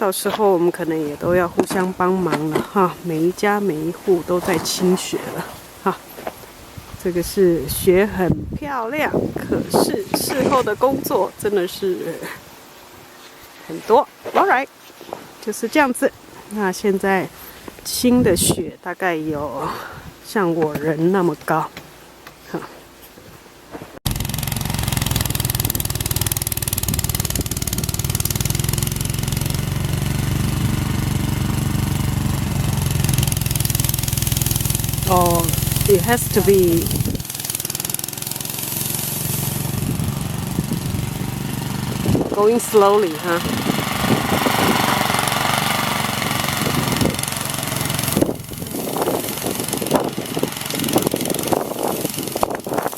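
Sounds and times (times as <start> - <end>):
snowblower engine running: 24.1 - 52.9
short scraping bursts: 33.0 - 42.2.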